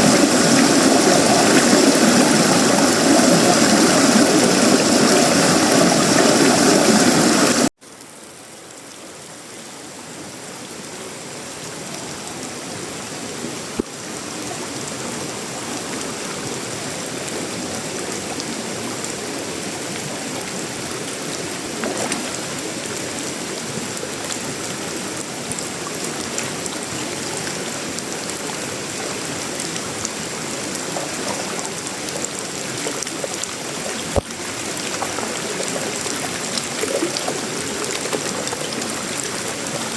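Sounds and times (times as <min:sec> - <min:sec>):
rain on sheet metal and leaves: 0:11.6 - 0:39.9.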